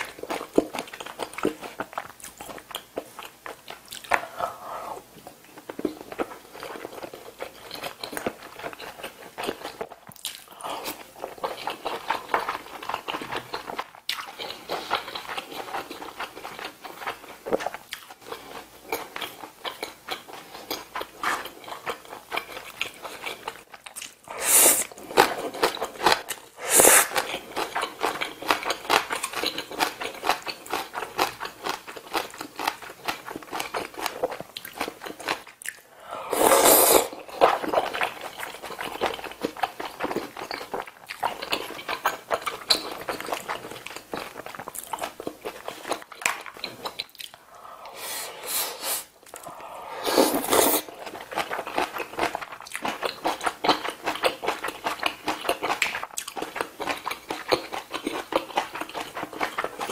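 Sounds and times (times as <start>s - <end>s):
person chewing: 0.0s - 59.9s
hissy sounds: 24.3s - 24.9s, 26.6s - 27.2s, 47.5s - 50.9s.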